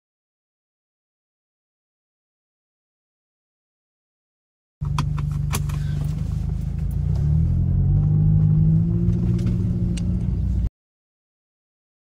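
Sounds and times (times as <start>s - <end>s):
car engine accelerating: 4.8s - 10.7s.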